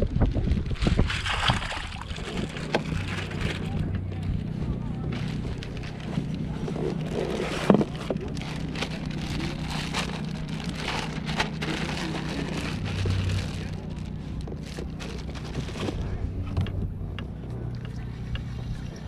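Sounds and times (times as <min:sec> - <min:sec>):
low hum: 0:00.0 - 0:19.0
water splashing against kayak hull: 0:00.8 - 0:04.0.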